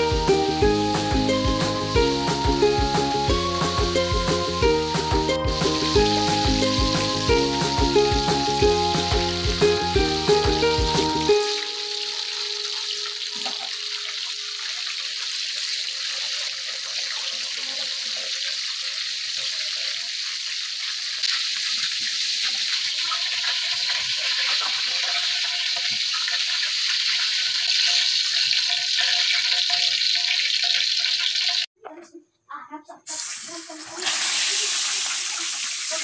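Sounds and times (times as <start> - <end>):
chicken deep-frying in oil: 11.3 - 31.7, 33.1 - 36.0.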